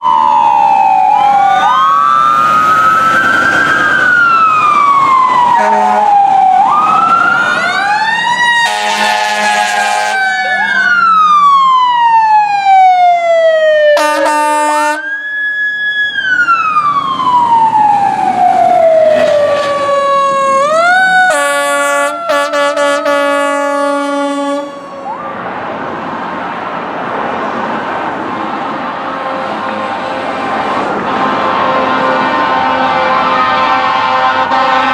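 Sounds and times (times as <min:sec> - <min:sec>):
fire truck sirens wailing: 0:00.0 - 0:34.9
passing engine rumble: 0:00.1 - 0:14.8, 0:15.4 - 0:34.9
fire truck air horn blasts: 0:05.4 - 0:06.3, 0:08.5 - 0:10.9, 0:14.0 - 0:15.2, 0:21.3 - 0:25.0, 0:29.1 - 0:34.9.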